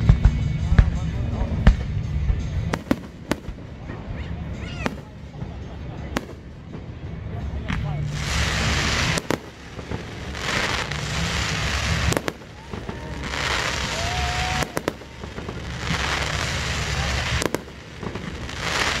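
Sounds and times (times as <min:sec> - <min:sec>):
firework bursts: 0:02.7 - 0:03.9, 0:04.6 - 0:19.0
fireworks crackling hiss: 0:07.7 - 0:19.0.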